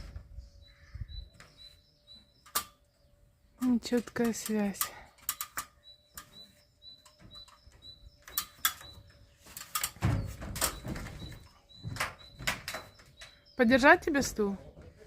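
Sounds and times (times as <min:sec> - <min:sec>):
small bird chirping: 0:00.0 - 0:15.0
sharp clicks and knocks: 0:02.4 - 0:02.9, 0:03.6 - 0:13.5.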